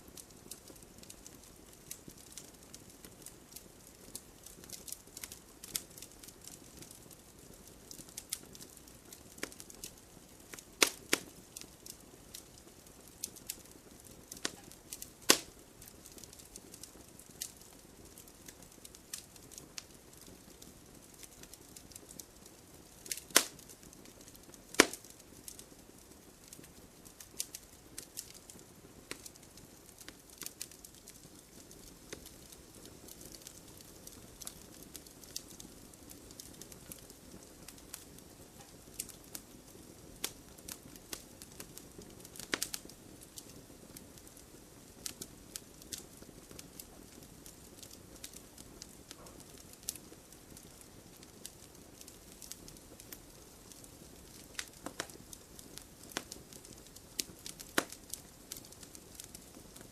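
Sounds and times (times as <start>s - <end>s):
campfire hissing: 0.0s - 59.9s
wood crackling and popping: 0.0s - 59.9s.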